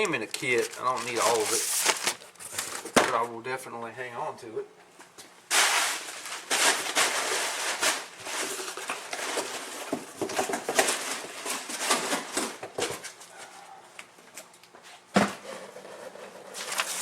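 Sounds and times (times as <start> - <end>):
packaging rustling and crinkling: 0.0 - 3.3, 5.5 - 13.2, 16.6 - 17.0.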